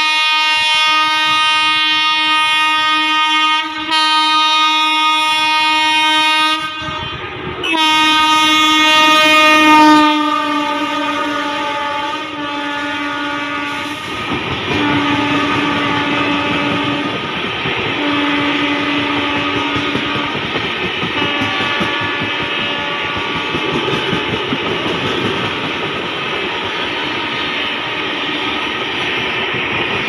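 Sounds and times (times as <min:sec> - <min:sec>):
locomotive horn blasts: 0:00.0 - 0:17.2, 0:17.9 - 0:20.4, 0:21.2 - 0:23.6
passing train rumble and clatter: 0:00.0 - 0:30.0.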